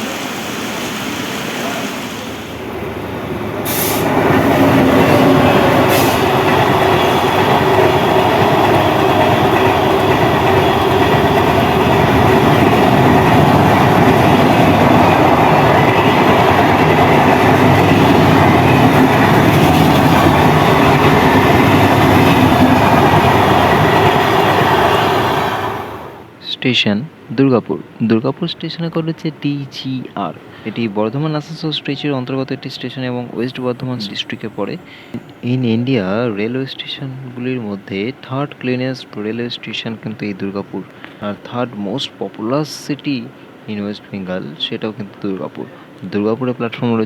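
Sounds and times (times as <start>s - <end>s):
train wheels rumbling on rails: 0.0s - 26.4s.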